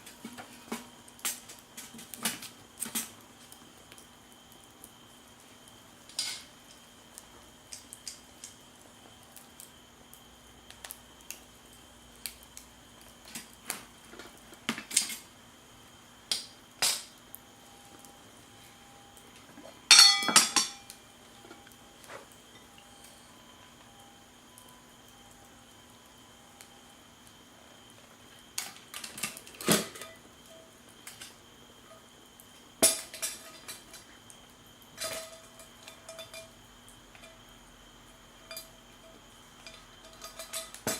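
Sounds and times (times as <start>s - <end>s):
cookware and utensils clinking: 19.9s - 20.9s, 35.0s - 36.6s, 39.6s - 40.9s
ringing metal or glass clinks: 19.9s - 20.9s.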